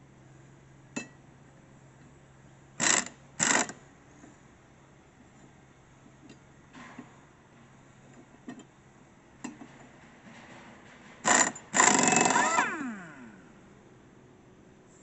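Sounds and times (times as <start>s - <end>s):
impact wrench: 2.8s - 3.8s, 11.2s - 13.6s.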